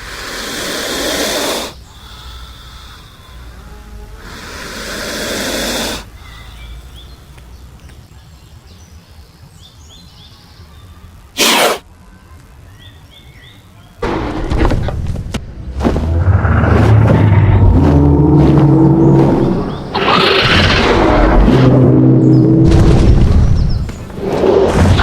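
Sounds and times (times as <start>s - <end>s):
loud hiss: 0.0s - 7.2s, 11.3s - 11.8s
faint bird-like chirps: 1.7s - 8.4s
loud rumbling: 14.0s - 25.0s.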